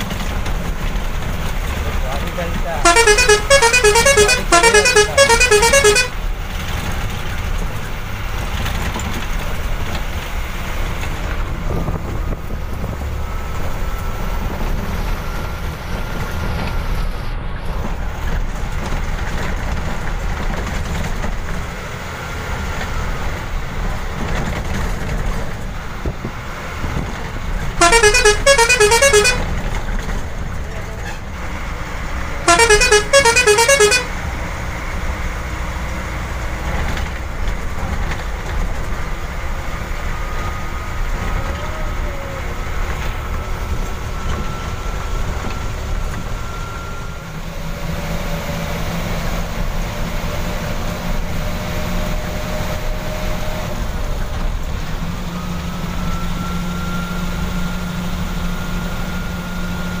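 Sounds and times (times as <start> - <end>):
bus diesel engine and road noise: 0.0 - 60.0
warbling multi-tone horn: 2.8 - 6.1, 27.8 - 29.5, 32.5 - 34.1.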